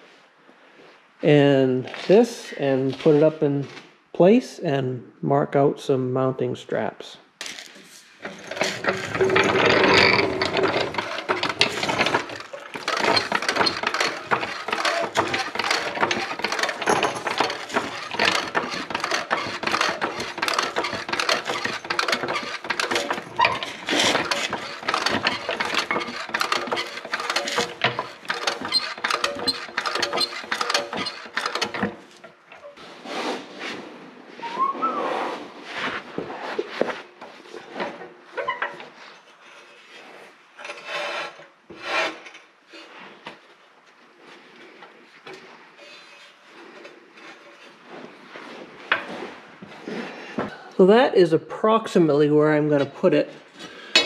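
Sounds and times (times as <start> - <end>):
metal clanks and scrapes: 7.6 - 33.8, 36.9 - 43.0, 44.6 - 50.1, 53.7 - 54.0.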